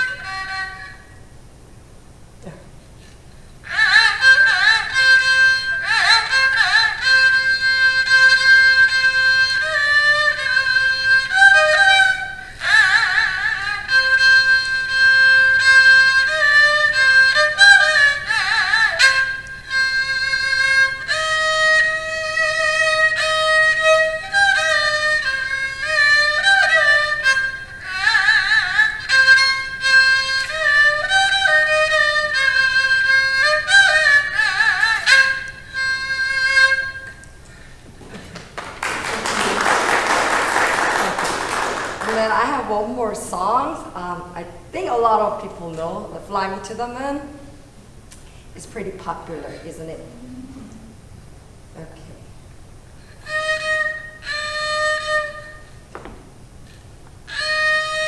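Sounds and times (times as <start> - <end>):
bowed fiddle slow melody: 0.0 - 2.3, 3.0 - 38.4, 52.5 - 56.0, 56.6 - 58.0.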